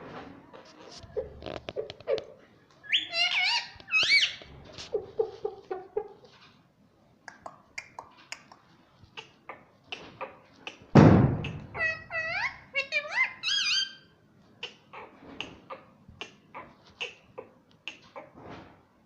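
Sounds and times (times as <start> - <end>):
parrot calling and chattering: 1.2 - 6.1, 9.2 - 18.4.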